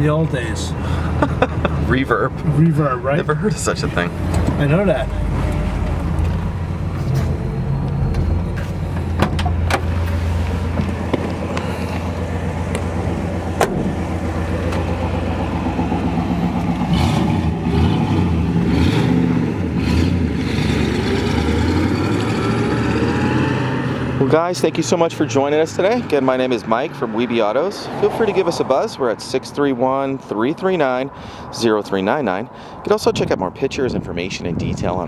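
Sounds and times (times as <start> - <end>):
car engine running: 0.3 - 20.0.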